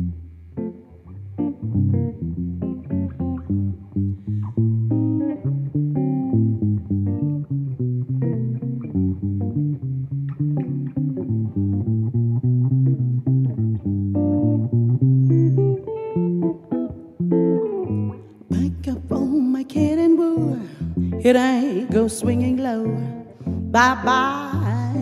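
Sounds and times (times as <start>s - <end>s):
solo jazz guitar playing chords: 0.0s - 25.0s.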